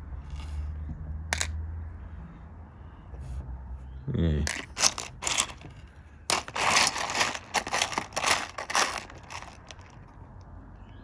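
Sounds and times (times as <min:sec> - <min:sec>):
stones scraping and rattling in dish: 0:04.5 - 0:10.0.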